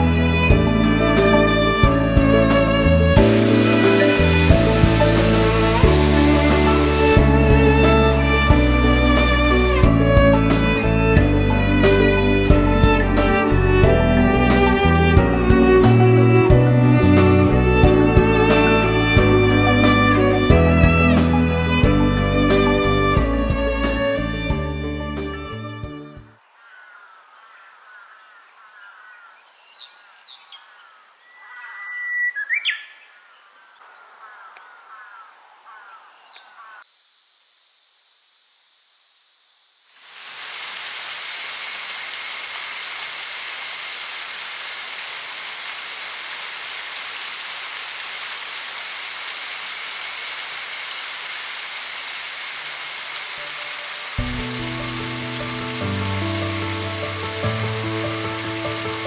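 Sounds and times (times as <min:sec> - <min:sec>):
high insect drone: 0:00.0 - 0:11.3, 0:36.4 - 0:59.0
even rushing hiss: 0:00.0 - 0:24.5, 0:36.9 - 0:59.0
birds chirping and whistling: 0:31.2 - 0:33.1.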